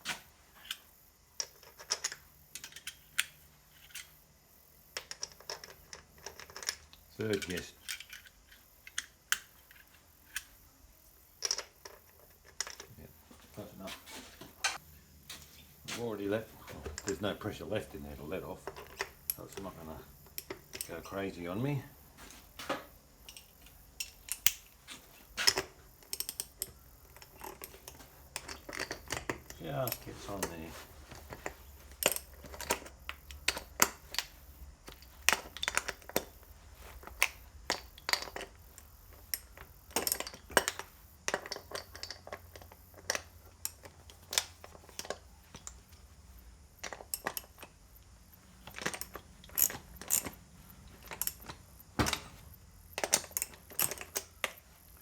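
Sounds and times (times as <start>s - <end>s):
hand tools clicking on bolts: 5.0s - 10.5s, 14.6s - 22.3s, 23.2s - 46.0s, 46.8s - 54.7s.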